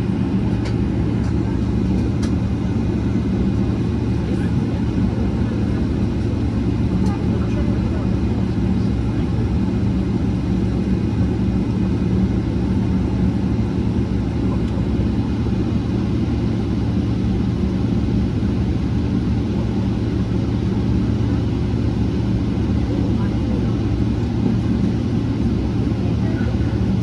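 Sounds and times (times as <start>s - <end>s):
airplane cabin roar: 0.0s - 27.0s.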